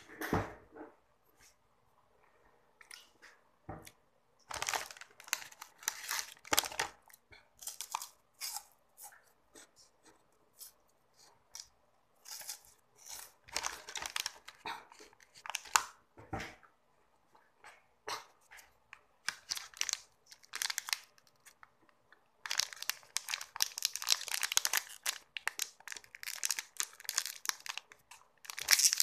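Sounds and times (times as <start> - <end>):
crunching and chewing wafer: 22.5 - 29.0.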